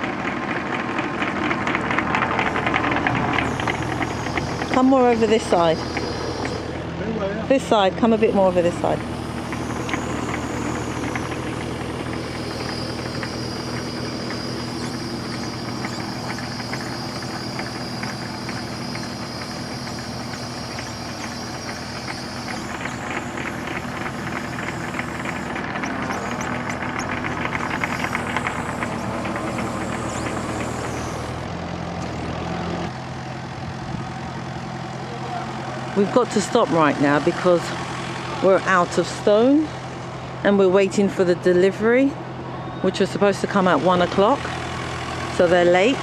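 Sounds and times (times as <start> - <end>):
fast rattle of clicks: 0.0 - 6.8, 7.6 - 32.2
high steady whine: 0.0 - 31.5
digging machine engine running: 0.0 - 46.0.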